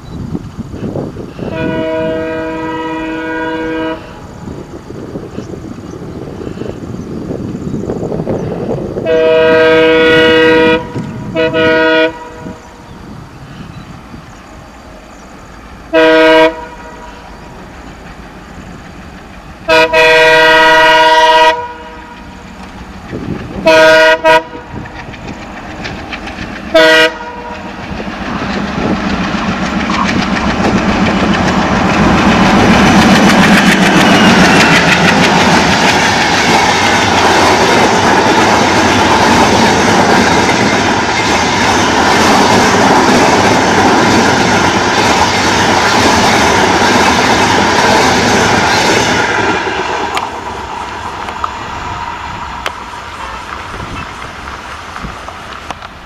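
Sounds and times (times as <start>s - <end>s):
train coaches rushing past: 0.0s - 56.0s
locomotive horn blasts: 1.4s - 4.2s, 9.0s - 12.6s, 15.9s - 17.2s, 19.7s - 22.2s, 23.6s - 24.8s, 26.7s - 27.6s
wheels clattering over rails: 24.4s - 51.6s.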